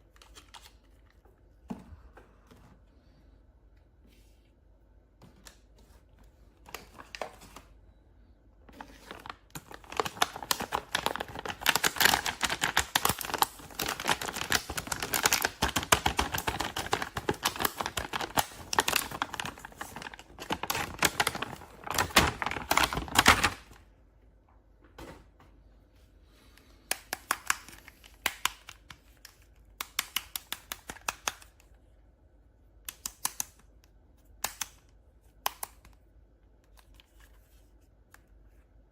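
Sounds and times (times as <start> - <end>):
plastic and card crinkling: 0.0 - 1.4, 5.4 - 7.8, 8.7 - 23.8
packaging rustling: 8.7 - 23.8.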